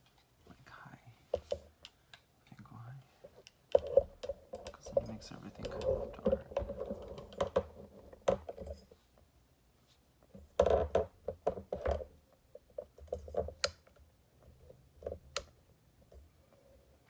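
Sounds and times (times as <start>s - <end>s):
rustling and scraping with knocks: 3.2s - 13.6s.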